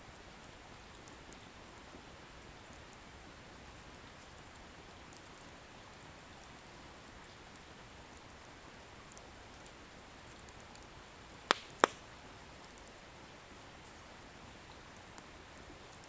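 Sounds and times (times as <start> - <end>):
bonfire hissing and crackling: 0.1 - 13.8
wood popping: 11.5 - 12.1.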